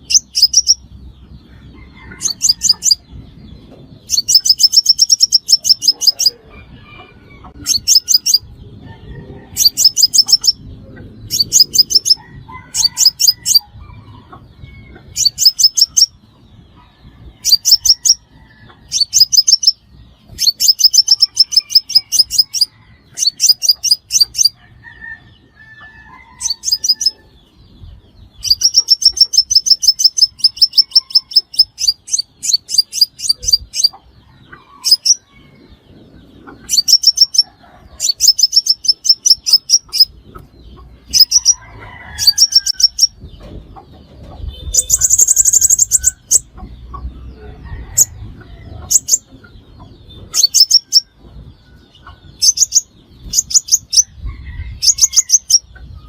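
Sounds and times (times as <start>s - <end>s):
bird high-pitched trills: 0.0s - 0.8s, 4.1s - 6.4s, 7.5s - 8.5s, 9.5s - 10.6s, 15.1s - 16.2s, 17.4s - 18.2s, 18.9s - 24.6s, 28.4s - 34.0s, 36.7s - 40.2s, 41.1s - 41.6s, 44.4s - 46.6s, 50.1s - 51.1s, 52.0s - 54.2s.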